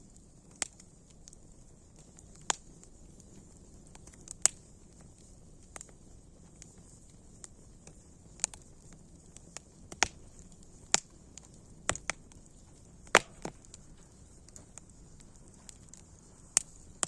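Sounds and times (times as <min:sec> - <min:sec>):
faint steady hiss: 0:00.0 - 0:17.0
wood fire crackling: 0:00.0 - 0:17.0.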